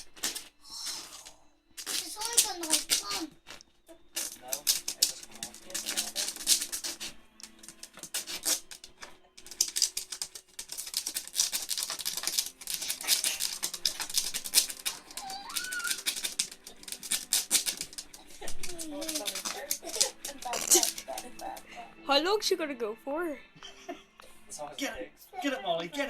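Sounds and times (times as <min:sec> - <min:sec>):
puppy claws scrabbling at plastic toy: 0:04.2 - 0:21.7.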